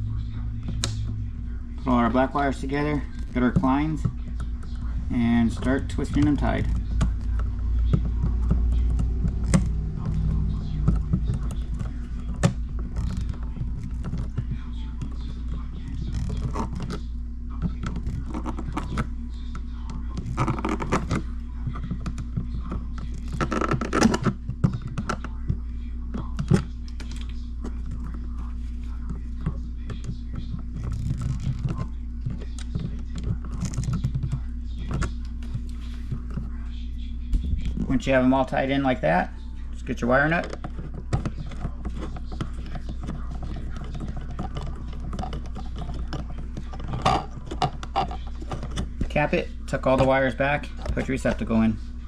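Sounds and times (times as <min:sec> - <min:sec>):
low hum: 0:00.0 - 0:52.0
pliers clicking and scraping wires: 0:40.2 - 0:51.6.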